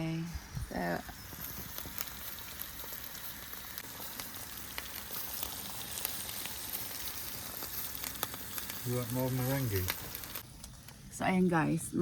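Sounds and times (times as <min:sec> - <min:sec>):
sausages sizzling in a frying pan: 0:00.0 - 0:10.5.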